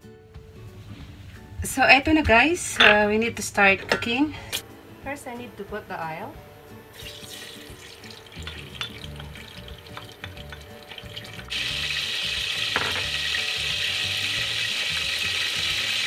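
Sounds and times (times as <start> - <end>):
oil sizzling in pot: 6.9 - 16.0.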